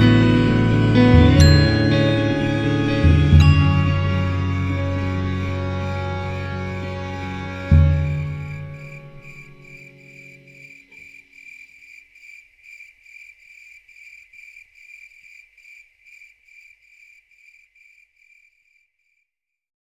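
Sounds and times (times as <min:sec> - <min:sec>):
music: 0:00.0 - 0:10.5
cricket chirping: 0:03.4 - 0:19.4.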